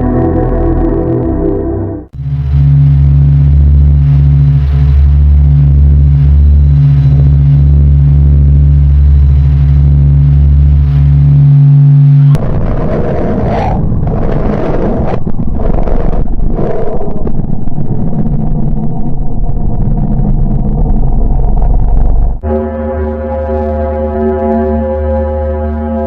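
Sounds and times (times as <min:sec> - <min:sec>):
deep steady drone: 0:00.0 - 0:26.0
rough noisy rumble: 0:00.0 - 0:26.0.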